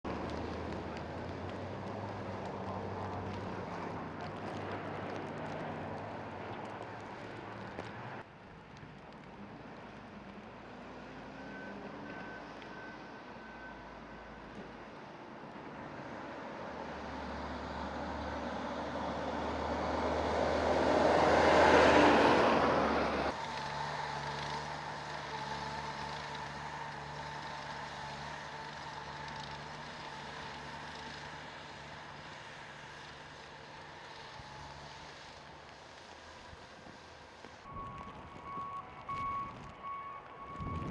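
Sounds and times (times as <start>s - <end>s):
heavy vehicle passing: 15.8s - 33.3s.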